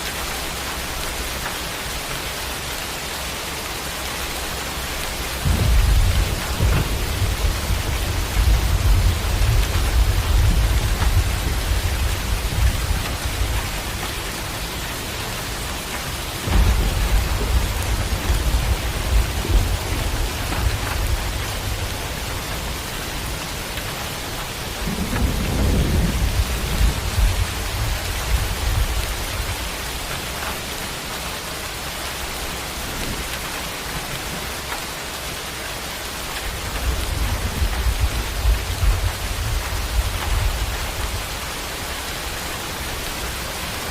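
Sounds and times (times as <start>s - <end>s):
heavy rain hissing: 0.0s - 43.9s
thunder rumbling: 4.4s - 34.6s, 36.0s - 43.9s.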